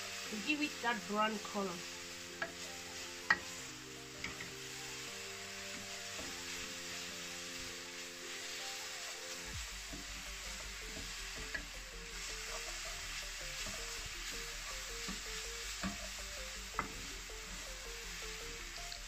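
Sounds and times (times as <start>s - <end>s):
coconut sizzling in a metal pan: 0.0s - 19.0s
wooden spoon knocking a pan: 4.2s - 4.6s.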